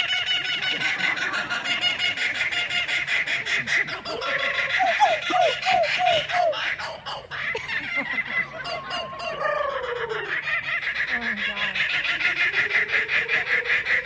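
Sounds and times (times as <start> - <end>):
kookaburra laughing: 0.0 - 14.0.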